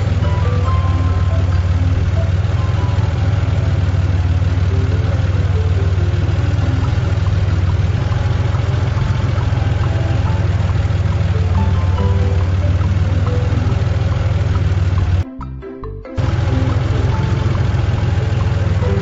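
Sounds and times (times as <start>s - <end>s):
road roller engine rumble: 0.0s - 15.2s, 16.2s - 19.0s
light melody of short notes: 0.0s - 19.0s.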